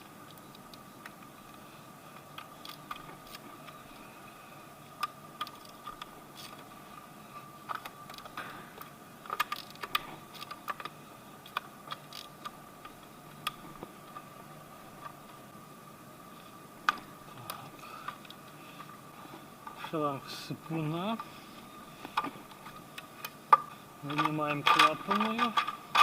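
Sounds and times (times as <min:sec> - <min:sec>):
faint steady high hum: 0:00.0 - 0:26.0
hand tools clicking and knocking: 0:24.1 - 0:26.0.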